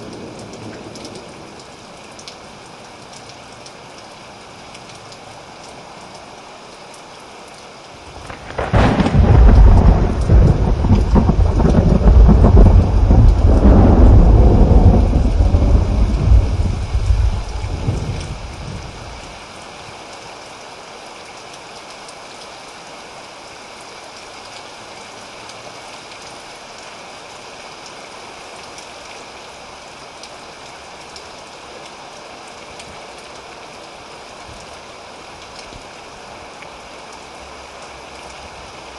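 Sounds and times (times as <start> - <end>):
rain hiss: 0.0 - 38.9
thunder rumbling: 8.1 - 19.4.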